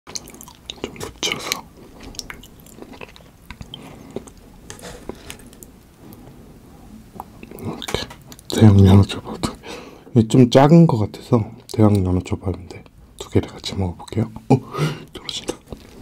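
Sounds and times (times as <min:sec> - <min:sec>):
wet chewing and mouth clicks: 0:00.1 - 0:06.3.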